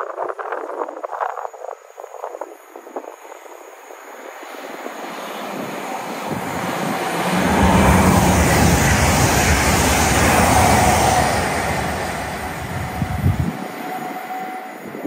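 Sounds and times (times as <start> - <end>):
train passing at speed: 3.2 - 15.0.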